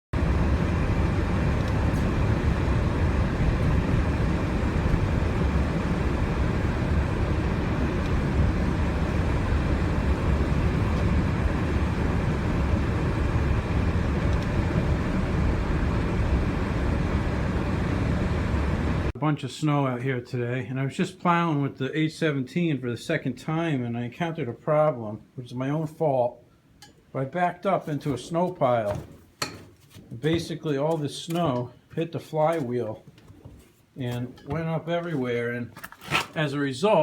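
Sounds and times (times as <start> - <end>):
garden tractor engine droning: 0.2 - 19.1.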